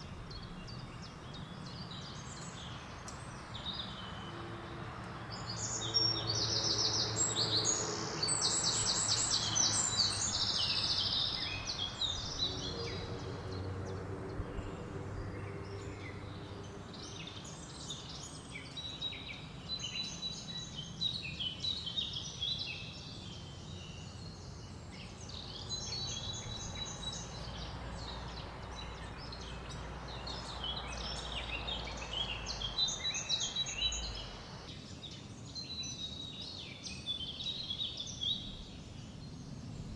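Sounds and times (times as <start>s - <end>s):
songbirds singing and chirping: 0.0s - 39.9s
wind rustling leaves: 25.3s - 35.6s.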